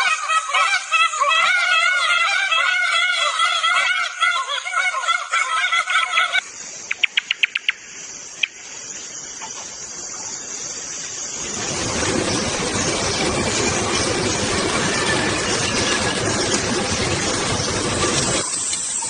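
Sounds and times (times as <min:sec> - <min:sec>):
wavering bird call: 0:00.0 - 0:07.7
forest noise with insects: 0:00.0 - 0:19.0.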